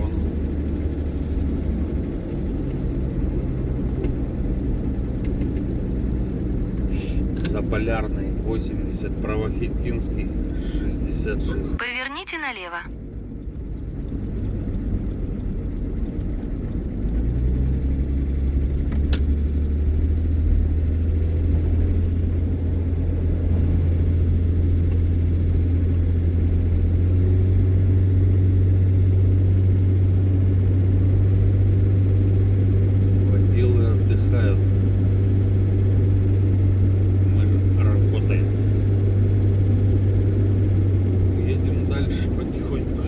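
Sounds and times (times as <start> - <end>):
vehicle engine drone: 0.0 - 43.0.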